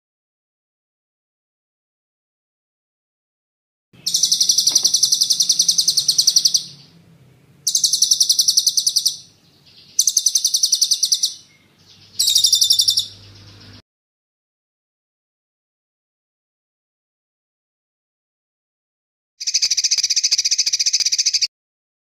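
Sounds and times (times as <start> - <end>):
songbird trilling: 4.0 - 7.0, 7.6 - 13.8, 19.4 - 21.5.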